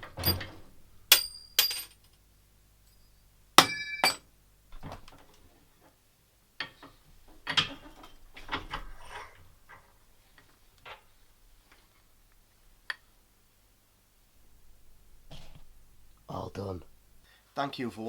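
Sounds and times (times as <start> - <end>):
metal clanking on metal: 0.0 - 2.0, 3.6 - 4.2
metal clattering and scraping: 0.0 - 2.0.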